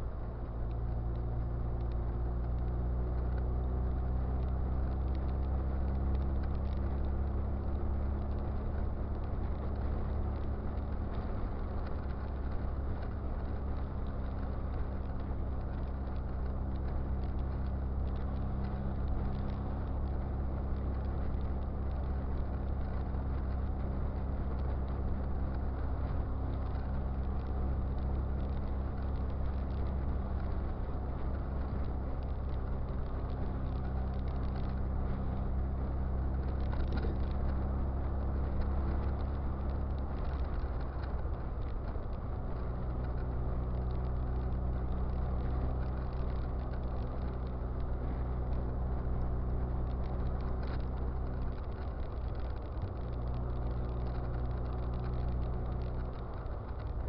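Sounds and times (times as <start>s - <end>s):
car engine cruising: 0.0s - 57.0s
road and wind noise: 0.0s - 57.0s.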